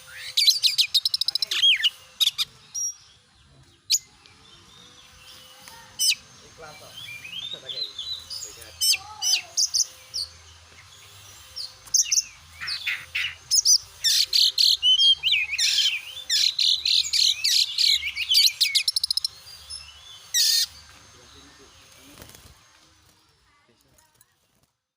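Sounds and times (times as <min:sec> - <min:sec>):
bird singing whistled song: 0:06.9 - 0:10.4, 0:11.0 - 0:20.8.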